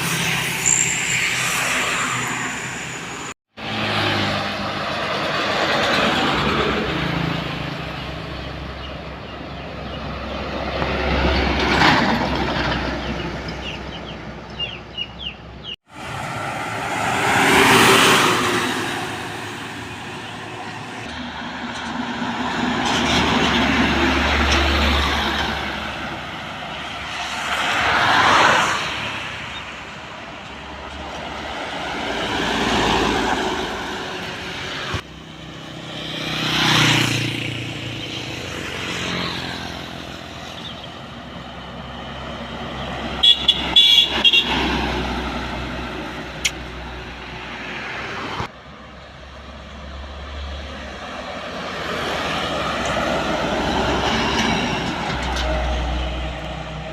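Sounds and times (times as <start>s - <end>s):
trucks passing on highway: 0.0s - 56.9s
vehicle horn blasts: 43.2s - 44.6s.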